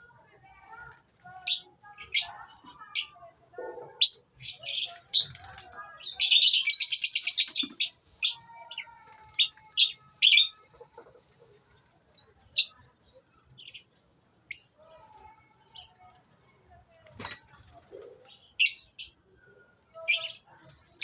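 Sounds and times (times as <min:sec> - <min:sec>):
lovebirds chirping: 0:04.0 - 0:15.0, 0:17.2 - 0:21.0.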